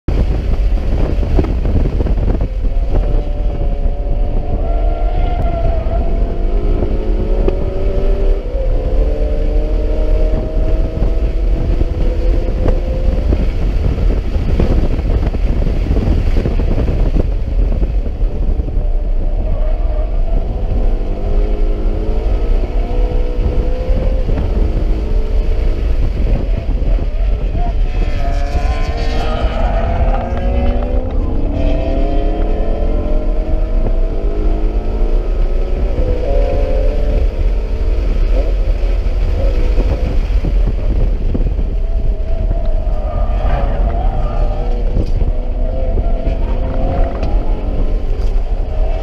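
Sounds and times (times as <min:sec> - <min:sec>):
car engine accelerating: 0:00.0 - 0:49.0
road and wind rumble: 0:00.0 - 0:49.0.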